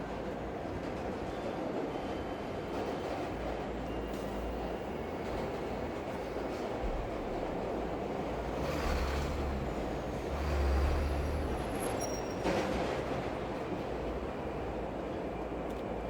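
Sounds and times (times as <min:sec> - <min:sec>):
train rumbling past: 0:00.0 - 0:16.0
high wheel squeal: 0:08.8 - 0:12.8.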